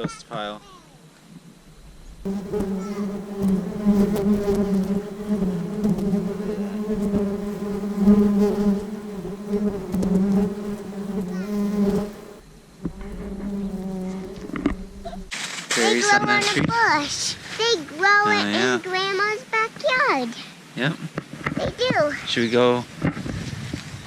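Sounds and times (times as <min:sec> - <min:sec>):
flying insect buzzing: 0:01.5 - 0:15.4.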